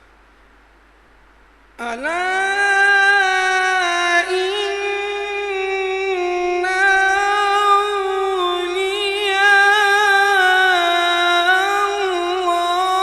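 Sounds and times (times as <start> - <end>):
man reciting in melodic chant: 1.8 - 13.0.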